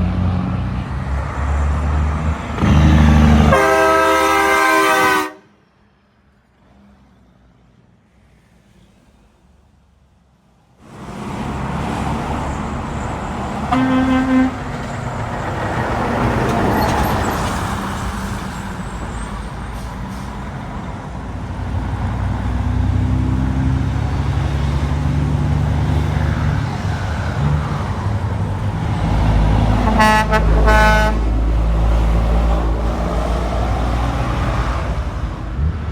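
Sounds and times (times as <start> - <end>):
heavy truck engine rumbling: 0.0 - 7.8, 8.4 - 35.9
highway traffic passing: 0.0 - 35.9
car horn toot: 2.6 - 5.5, 13.7 - 14.6, 29.8 - 31.2
truck horn blasts: 2.6 - 5.6, 13.7 - 14.8, 29.7 - 31.4.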